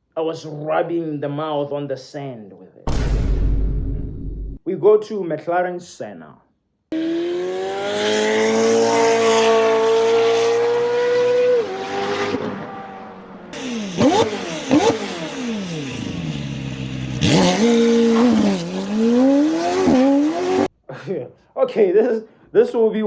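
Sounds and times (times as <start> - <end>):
car engine revving: 6.9 - 20.7.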